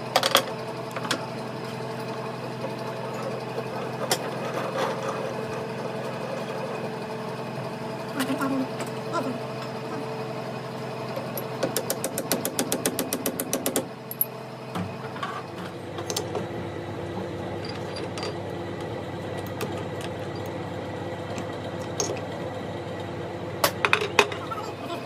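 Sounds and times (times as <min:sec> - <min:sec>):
machine running: 0:15.7 - 0:24.1.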